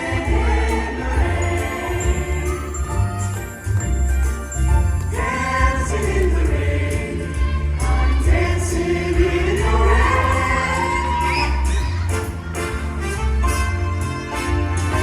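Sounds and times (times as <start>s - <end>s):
voices singing: 0.0s - 3.4s, 5.0s - 12.5s
instrumental accompaniment: 0.0s - 15.0s.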